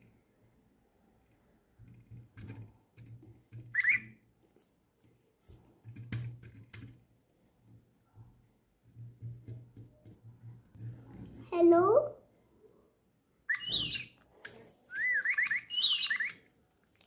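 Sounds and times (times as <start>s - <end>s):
toy bird electronic chirp: 3.7s - 4.2s, 13.5s - 14.2s, 14.9s - 16.4s.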